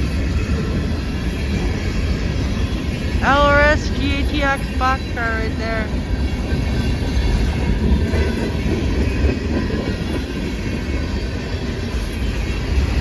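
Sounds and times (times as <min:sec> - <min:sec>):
freight train wheels rumbling on rails: 0:00.0 - 0:13.0.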